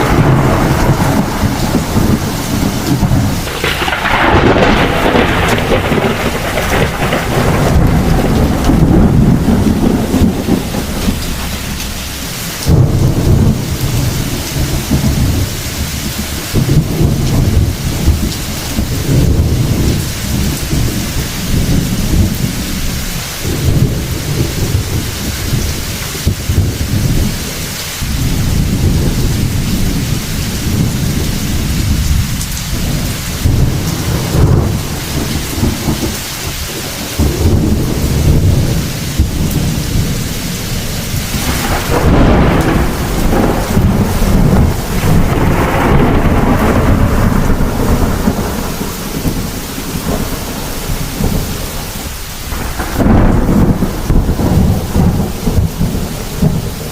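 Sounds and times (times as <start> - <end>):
steady rain falling: 0.0 - 56.9
thunder rumbling: 0.0 - 56.9.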